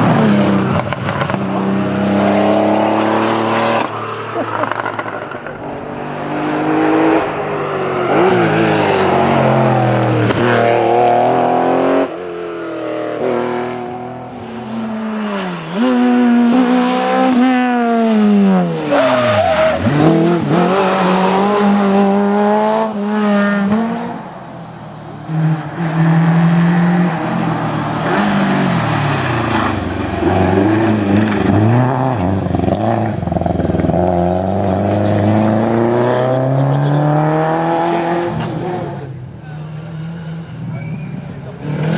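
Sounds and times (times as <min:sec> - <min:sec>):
car passing: 0:00.0 - 0:41.9
rally car engines revving: 0:00.0 - 0:41.9.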